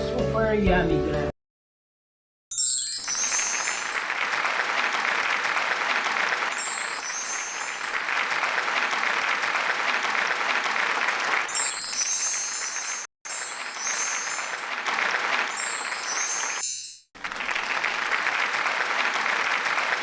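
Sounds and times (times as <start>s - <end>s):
sparkling chime flourish: 2.5s - 4.7s, 6.5s - 8.4s, 11.5s - 17.1s
steady applause: 3.1s - 16.6s, 17.2s - 20.0s.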